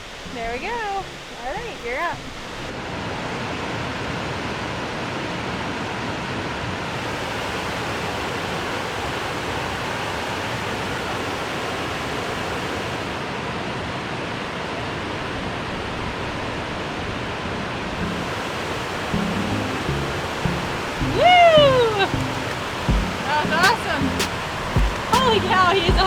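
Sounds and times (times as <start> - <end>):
waterfall rushing: 6.8 - 13.3, 17.9 - 26.0.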